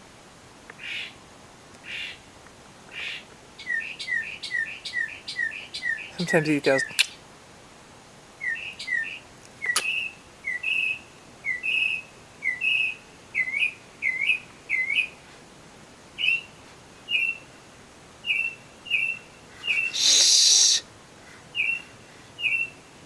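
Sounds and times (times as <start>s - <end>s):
mockingbird singing: 3.0s - 7.2s, 8.4s - 15.1s, 16.2s - 16.5s, 18.2s - 20.8s, 21.6s - 21.8s.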